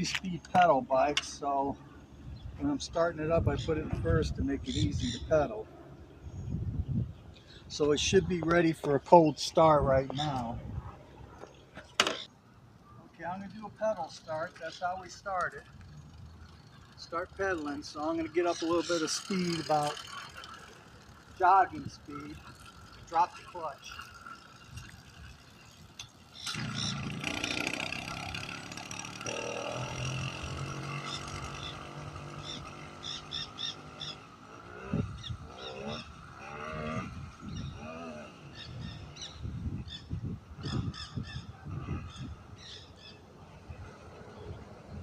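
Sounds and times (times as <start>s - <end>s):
two-stroke engine buzzing: 13.3s - 45.0s.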